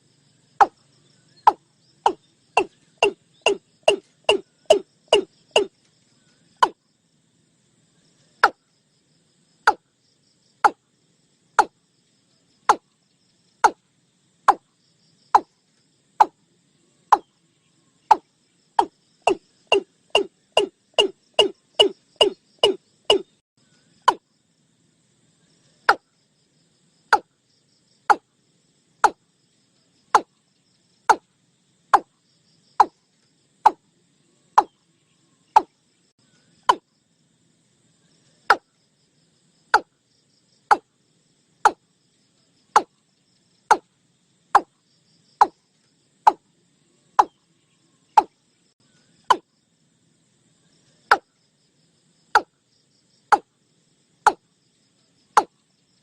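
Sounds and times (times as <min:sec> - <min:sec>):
bird calling sharp notes: 0:01.4 - 0:05.7, 0:18.1 - 0:23.4.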